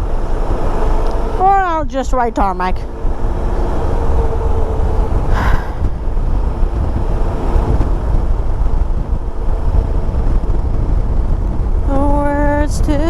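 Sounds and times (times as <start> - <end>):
motorcycle engine: 0.0 - 13.0
wind rush on microphone: 0.0 - 13.0.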